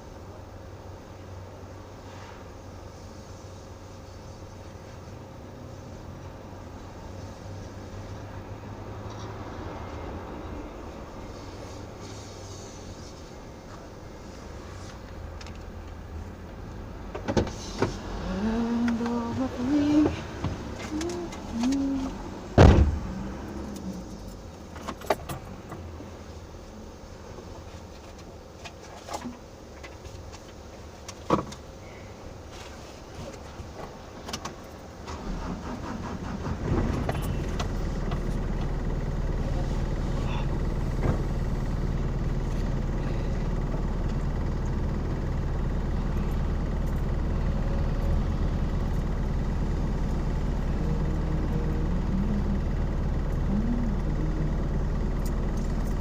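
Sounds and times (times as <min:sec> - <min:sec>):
car engine idling: 0:00.0 - 0:32.7, 0:33.3 - 0:56.0
car door thud: 0:22.6 - 0:23.1.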